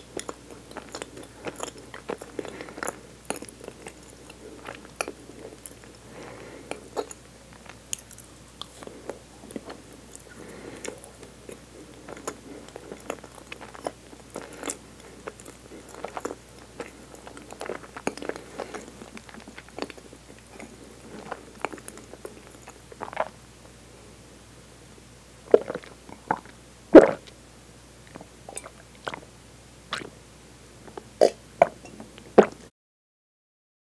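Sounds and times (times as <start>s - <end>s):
chewing soft food: 0.0s - 23.4s, 28.0s - 29.3s, 29.9s - 30.1s
swallowing and gulping milk: 0.0s - 23.4s, 25.5s - 27.3s, 28.1s - 29.3s, 29.9s - 30.1s, 30.9s - 32.6s.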